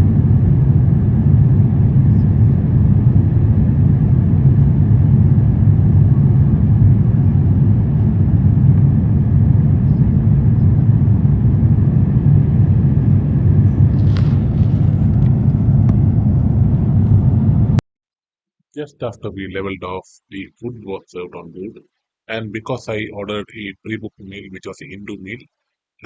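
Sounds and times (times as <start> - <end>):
aircraft cabin engine rumble: 0.0 - 17.8.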